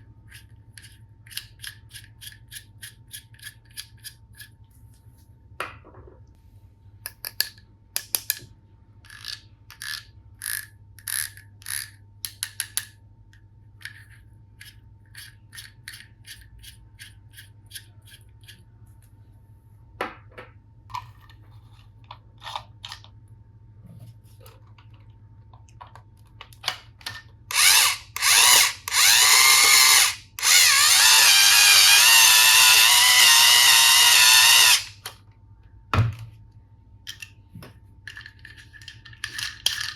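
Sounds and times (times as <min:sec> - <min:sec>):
toy screwdriver motor whirring: 0:09.1 - 0:12.0, 0:27.5 - 0:35.1.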